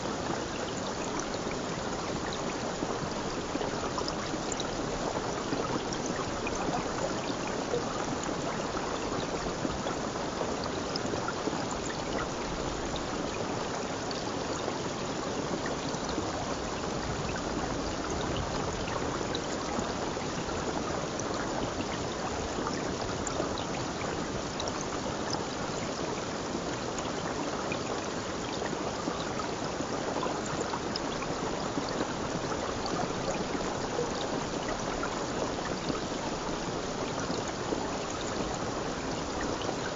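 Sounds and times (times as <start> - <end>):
water splashes and trickles: 0.0 - 39.9.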